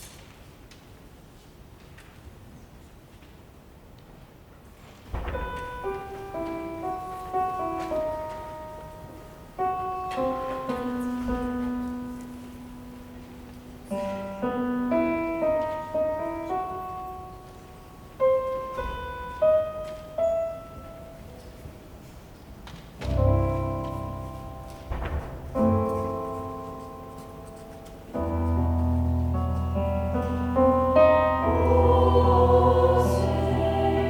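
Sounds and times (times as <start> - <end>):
slow solo piano: 5.0 - 34.0.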